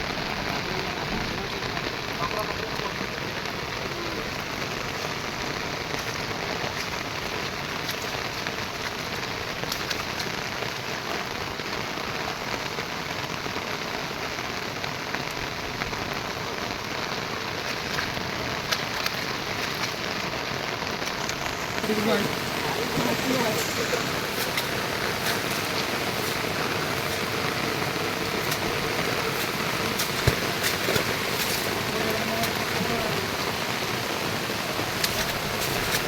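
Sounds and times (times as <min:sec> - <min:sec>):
rain drop ticks: 0:00.0 - 0:12.8, 0:15.2 - 0:36.0
steady rain falling: 0:00.0 - 0:36.0.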